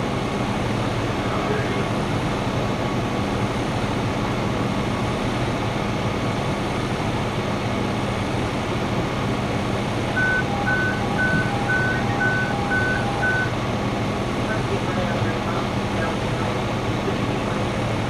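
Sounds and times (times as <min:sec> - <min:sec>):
truck engine running: 0:00.0 - 0:18.0
two-tone backup alarm beeping: 0:10.1 - 0:13.7.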